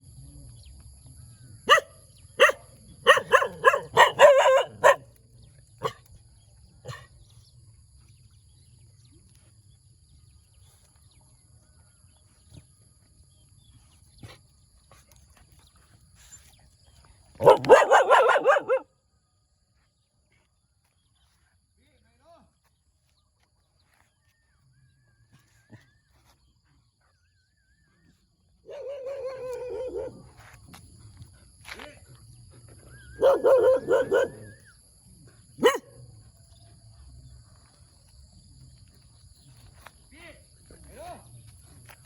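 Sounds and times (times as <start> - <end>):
puppy barking: 1.7 - 5.1, 17.4 - 18.9, 28.7 - 30.3, 33.1 - 34.6, 35.6 - 36.0.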